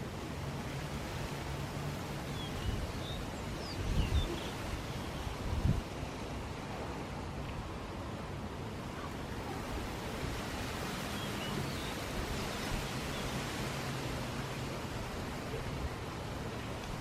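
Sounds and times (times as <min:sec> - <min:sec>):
palm fronds rustling in wind: 0:00.0 - 0:17.0
seaside wind hiss: 0:00.0 - 0:17.0
waves on the shore: 0:00.0 - 0:17.0.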